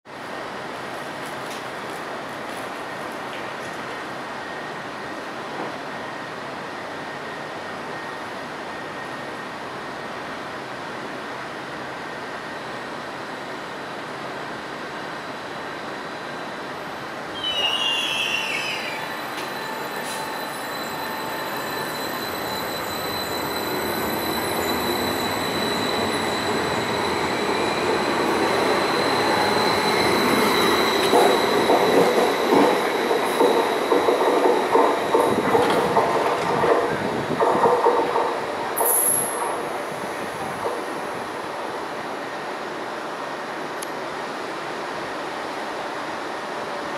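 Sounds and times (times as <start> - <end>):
electric train high whine: 0.2 - 46.9
high wheel squeal: 17.3 - 31.6.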